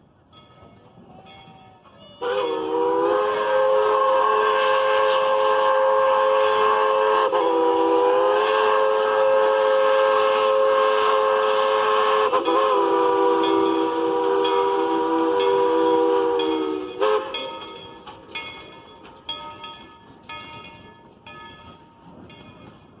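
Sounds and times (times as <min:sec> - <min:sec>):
steam locomotive whistle: 0:01.2 - 0:18.3.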